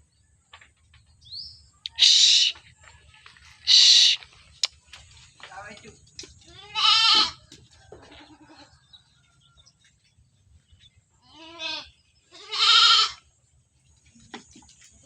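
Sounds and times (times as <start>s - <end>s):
goats bleating: 3.7s - 4.2s, 6.5s - 7.4s, 8.1s - 8.7s, 11.2s - 13.2s.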